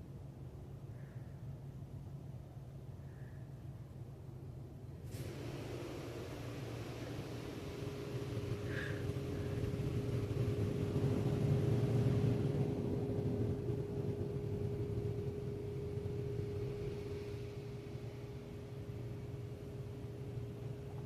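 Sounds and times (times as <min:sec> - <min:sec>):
car wash machinery humming: 0:05.0 - 0:21.0.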